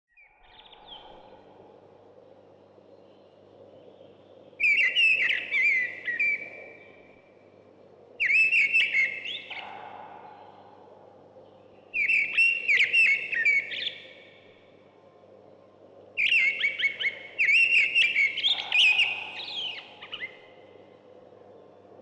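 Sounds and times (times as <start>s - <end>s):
songbird singing whistled notes: 0.1s - 1.4s, 2.9s - 7.3s, 8.2s - 10.6s, 11.8s - 14.5s, 16.2s - 20.8s.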